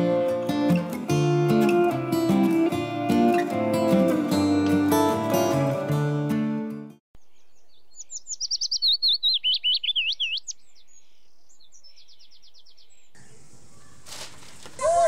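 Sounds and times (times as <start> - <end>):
acoustic guitar music: 0.0 - 7.0
songbird whistling and trilling: 7.2 - 14.0.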